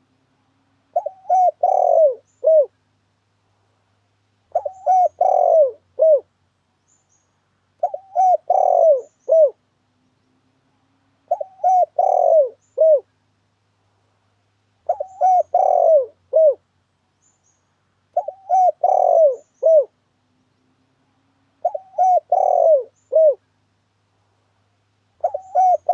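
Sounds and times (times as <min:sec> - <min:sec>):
dove cooing: 0:00.9 - 0:02.7, 0:04.5 - 0:06.3, 0:07.8 - 0:09.6, 0:11.3 - 0:13.1, 0:14.8 - 0:16.6, 0:18.1 - 0:20.0, 0:21.6 - 0:23.4, 0:25.2 - 0:25.9.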